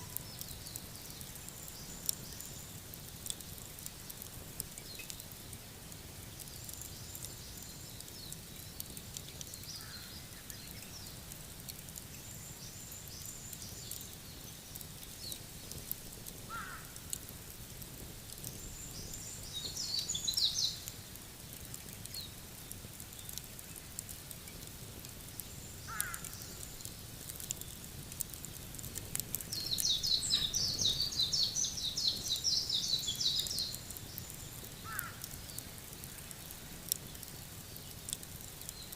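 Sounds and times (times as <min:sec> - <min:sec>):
wood fire crackling: 0:00.0 - 0:38.9
songbird chirping rapidly: 0:18.6 - 0:20.8, 0:29.5 - 0:34.5.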